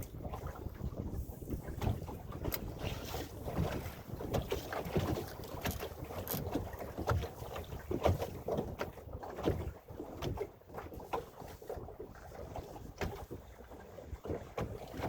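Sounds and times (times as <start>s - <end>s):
wind buffeting microphone: 0.0s - 7.2s
water slapping against hull: 0.0s - 15.0s.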